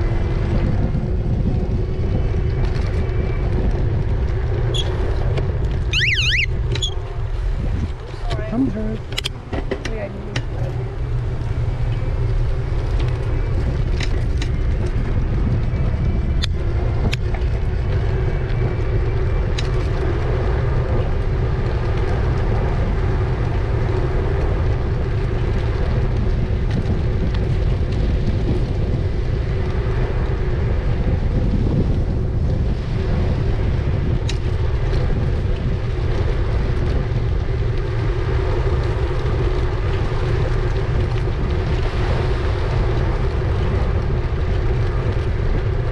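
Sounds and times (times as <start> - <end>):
wind buffeting microphone: 0.0 - 45.9
sharp clicks from bumps: 7.9 - 10.8, 12.8 - 15.0.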